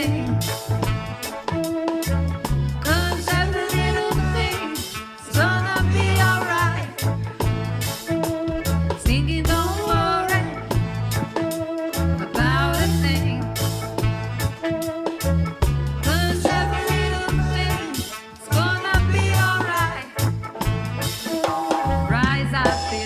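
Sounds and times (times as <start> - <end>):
person singing: 0.0 - 0.6, 2.8 - 7.1, 8.5 - 13.5, 16.0 - 20.2
bass line: 0.0 - 23.0
drums: 0.0 - 23.0
live reggae band: 0.0 - 23.0.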